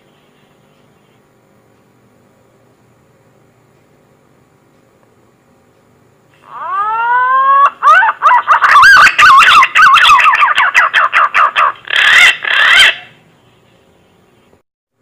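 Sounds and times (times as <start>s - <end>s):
pigeon whistling song: 6.6s - 13.2s.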